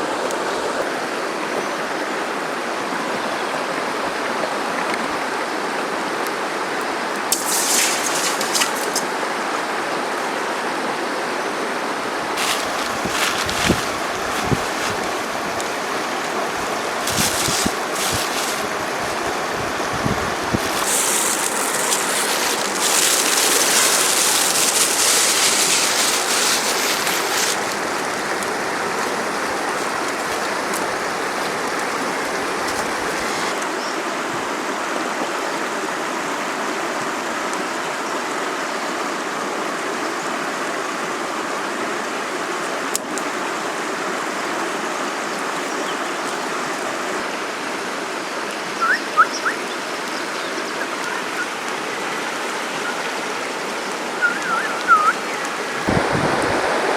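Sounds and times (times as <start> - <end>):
river water flowing: 0.0 - 56.9
bright hiss: 7.3 - 9.1, 12.4 - 30.8, 55.9 - 56.9.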